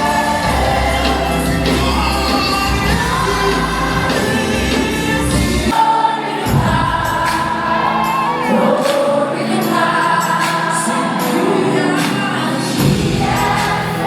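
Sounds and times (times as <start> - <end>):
band playing: 0.0 - 9.9
gospel choir and singers: 0.0 - 14.0.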